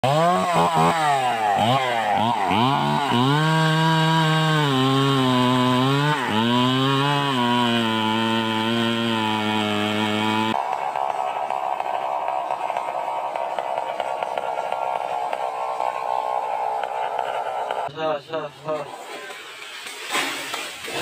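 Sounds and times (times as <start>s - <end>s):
chainsaw revving: 0.0s - 17.9s.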